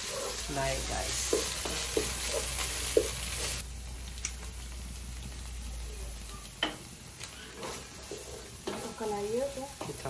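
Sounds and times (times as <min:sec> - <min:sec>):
wooden spatula scraping a pot: 0:00.0 - 0:03.6, 0:07.4 - 0:10.0
food sizzling in hot oil: 0:00.0 - 0:10.0.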